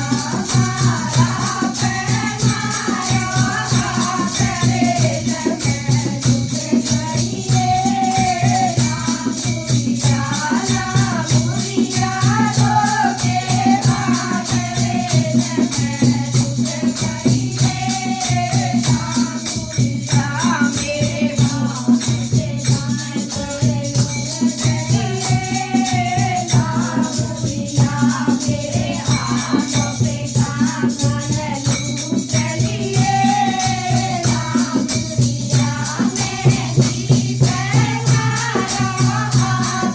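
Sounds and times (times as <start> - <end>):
devotional folk song singing: 0.0 - 39.9
fast rattling percussion: 0.0 - 39.9.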